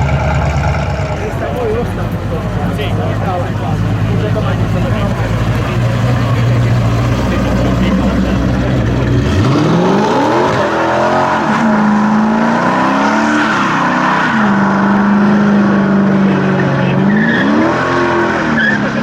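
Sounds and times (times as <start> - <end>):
car engine revving: 0.0 - 19.0
tyres squealing: 16.8 - 19.0.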